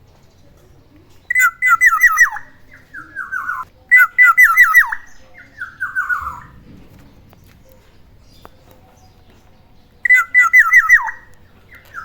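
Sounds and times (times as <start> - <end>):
oriole calling: 0.9 - 12.0.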